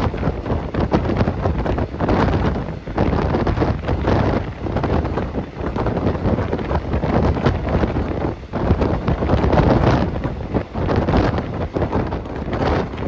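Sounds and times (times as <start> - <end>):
train running noise: 0.0 - 13.0
wind buffeting a microphone: 0.0 - 13.0.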